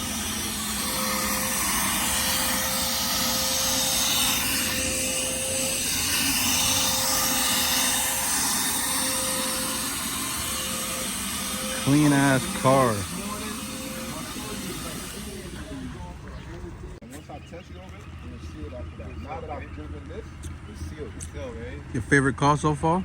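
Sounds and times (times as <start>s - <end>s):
faint steady whine: 0.0s - 17.0s
rushing vehicle noise: 0.0s - 17.0s.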